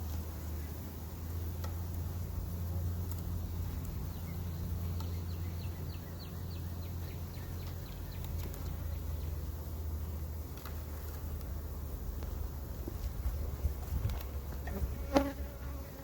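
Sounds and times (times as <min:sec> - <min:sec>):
steady low hum: 0:00.0 - 0:16.0
songbird trilling chirps: 0:03.4 - 0:10.4.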